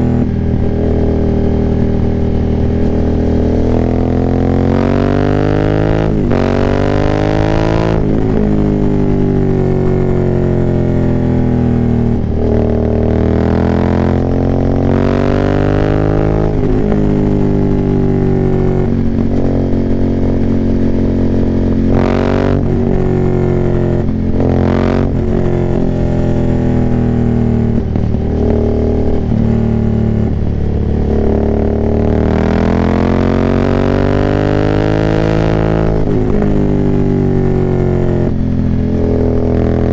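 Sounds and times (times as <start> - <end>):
motorcycle engine revving hard: 0.0 - 39.9.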